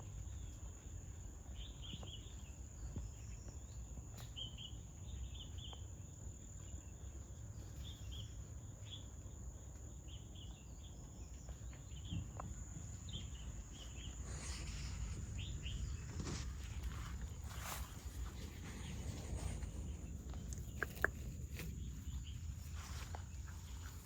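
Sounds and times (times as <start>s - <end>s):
insect chirps: 0.0s - 24.0s
low rumble: 12.2s - 24.0s.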